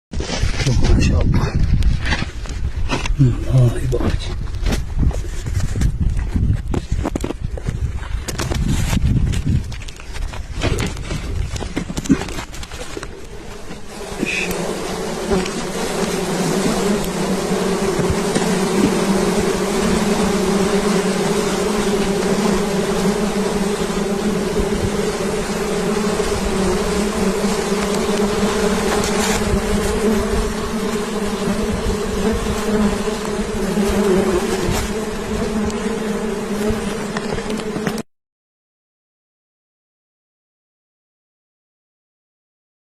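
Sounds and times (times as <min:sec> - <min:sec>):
honeybees buzzing: 0:12.4 - 0:38.0.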